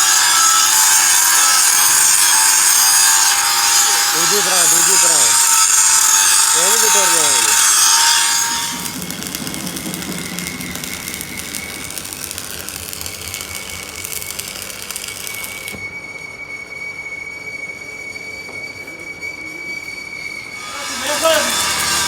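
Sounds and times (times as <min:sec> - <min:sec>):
machine high-pitched squeal: 0:00.0 - 0:22.0
hiss: 0:08.2 - 0:18.4.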